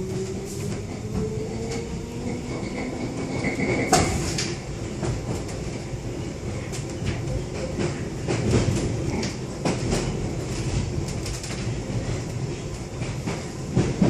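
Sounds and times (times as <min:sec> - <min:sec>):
train rumble and rattle: 0:00.0 - 0:14.0.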